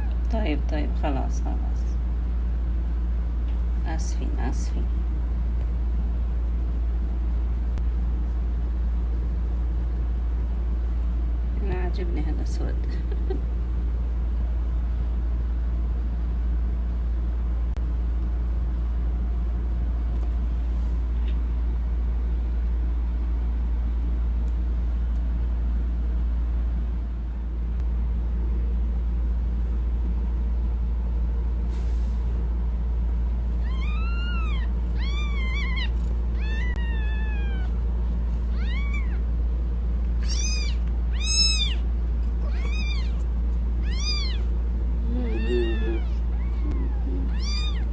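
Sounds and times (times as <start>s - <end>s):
steady low hum: 0.0s - 47.9s
kittens mewing: 33.6s - 39.4s, 40.2s - 47.9s.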